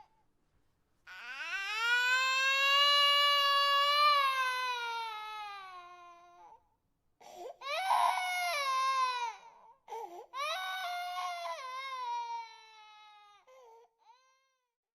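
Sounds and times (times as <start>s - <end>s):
infant crying: 1.1s - 6.6s, 7.2s - 14.5s
infant gasping for breath: 7.2s - 7.6s, 9.9s - 10.4s, 13.5s - 13.9s.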